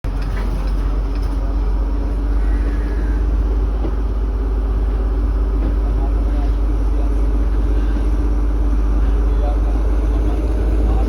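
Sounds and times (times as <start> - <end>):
diesel train rumbling: 0.0 - 11.0.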